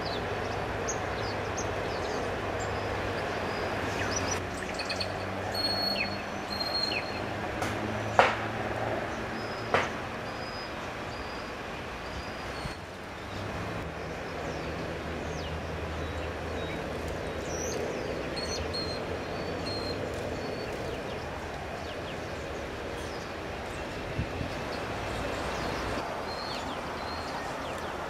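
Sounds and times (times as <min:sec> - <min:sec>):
distant traffic rumble: 0:00.0 - 0:28.0
small birds calling: 0:09.3 - 0:28.0.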